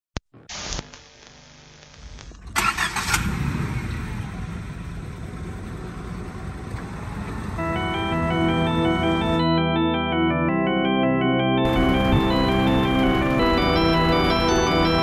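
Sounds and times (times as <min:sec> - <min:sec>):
car engine starting and idling: 0:02.4 - 0:09.6, 0:11.7 - 0:15.0.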